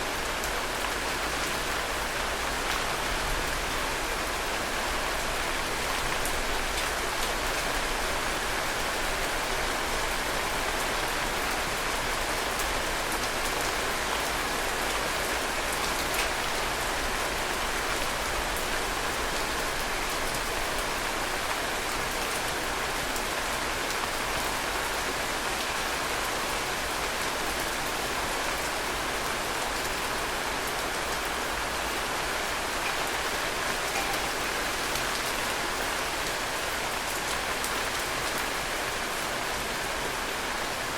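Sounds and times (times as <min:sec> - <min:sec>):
raindrops ticking: 0:33.6 - 0:35.4.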